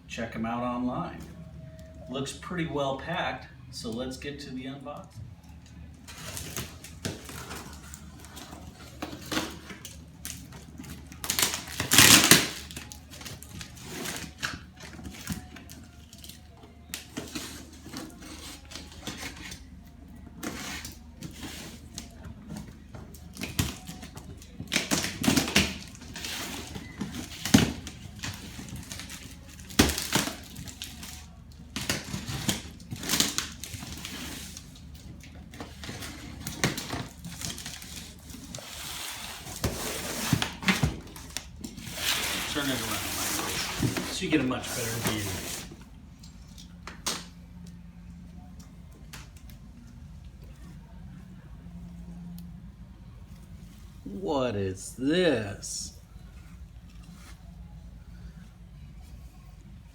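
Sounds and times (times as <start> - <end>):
cardboard tearing bursts: 11.0 - 15.5, 24.7 - 34.7, 41.8 - 45.7
cardboard scraping and rustling: 35.6 - 45.8.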